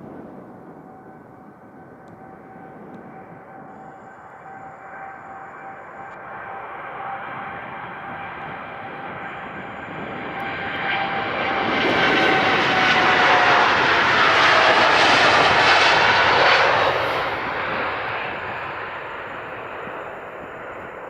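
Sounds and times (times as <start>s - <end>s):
jet airliner taking off: 0.0s - 21.0s.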